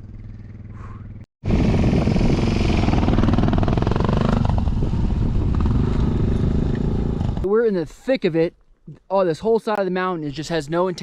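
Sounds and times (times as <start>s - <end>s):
faint engine: 0.0s - 7.5s
motorcycle engine running hard: 1.5s - 7.5s.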